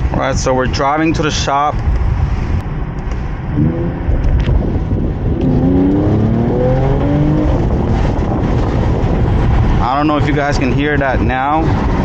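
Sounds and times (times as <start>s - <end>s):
car engine accelerating: 2.6s - 10.3s.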